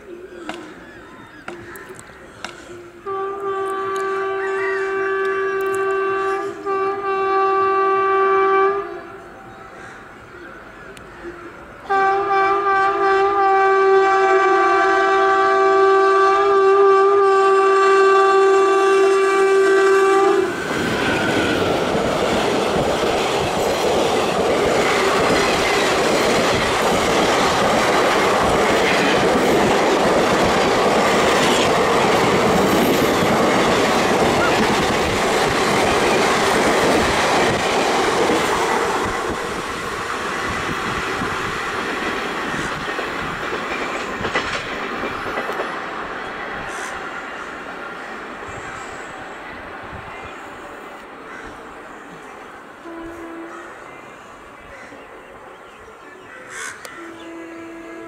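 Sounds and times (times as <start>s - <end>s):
locomotive horn blast: 2.9s - 9.3s, 11.8s - 22.1s, 52.8s - 53.8s, 56.9s - 58.0s
train wheels clattering: 19.9s - 47.0s.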